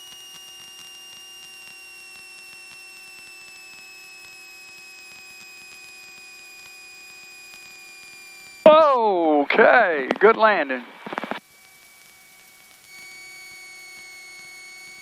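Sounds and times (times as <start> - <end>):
electrical hum: 8.0 - 11.4
high whine dropping in pitch: 8.7 - 11.4.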